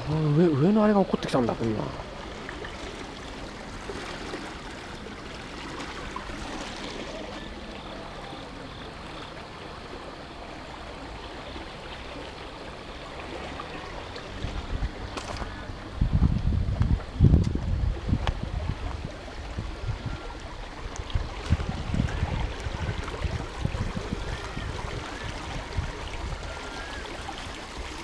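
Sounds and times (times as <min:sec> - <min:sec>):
flowing canal water: 0:00.0 - 0:28.0
wind buffeting microphone: 0:13.8 - 0:28.0.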